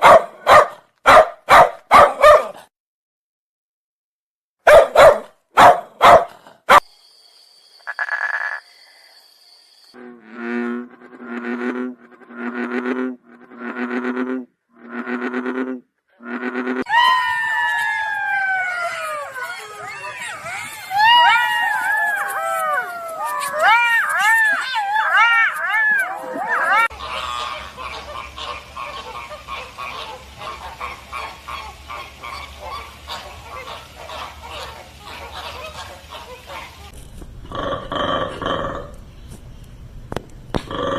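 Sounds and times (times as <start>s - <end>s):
animal call with pulsing buzz: 7.8s - 8.7s, 10.0s - 36.9s
waterfowl honking: 26.9s - 36.9s.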